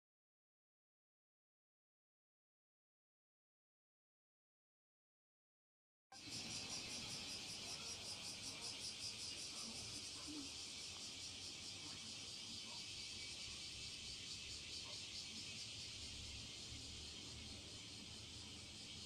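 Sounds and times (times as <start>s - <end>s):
engine pulsing high-pitched hiss: 6.2s - 19.0s.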